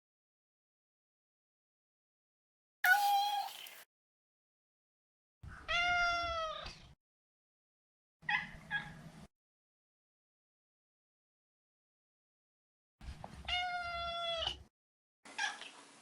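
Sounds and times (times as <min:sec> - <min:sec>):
cat meowing: 0:02.9 - 0:03.6, 0:13.5 - 0:14.6.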